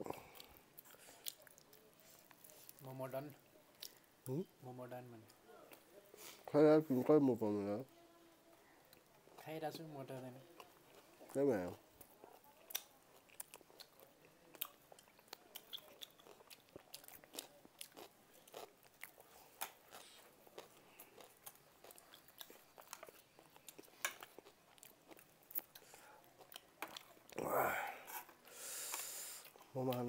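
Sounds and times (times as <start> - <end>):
chewing and biting: 12.0 - 27.4.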